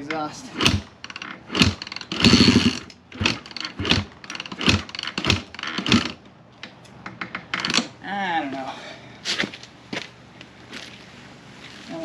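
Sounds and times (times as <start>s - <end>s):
dirt bike engine revving: 0.5s - 6.2s.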